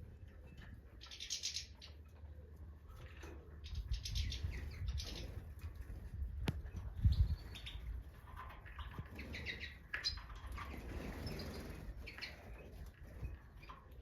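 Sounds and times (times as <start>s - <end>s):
finches chirping: 0.2s - 2.2s, 3.6s - 5.4s, 7.0s - 8.0s, 8.7s - 13.8s.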